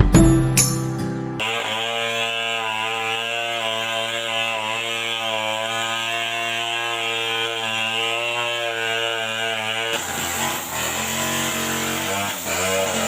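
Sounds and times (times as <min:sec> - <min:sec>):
chainsaw engine running: 0:01.4 - 0:13.0.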